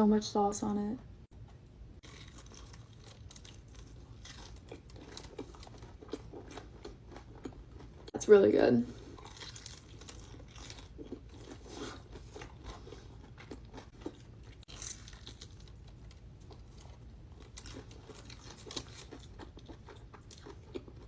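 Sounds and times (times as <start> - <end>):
small crunches: 2.0 - 7.9, 9.0 - 21.0
person chewing food: 2.0 - 8.1, 8.9 - 21.0.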